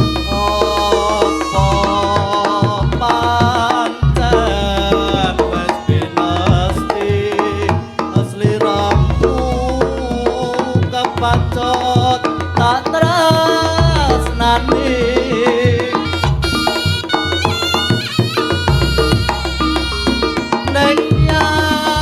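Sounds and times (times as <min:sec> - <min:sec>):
hand drums: 0:00.0 - 0:22.0
wavering melody lines: 0:11.2 - 0:22.0.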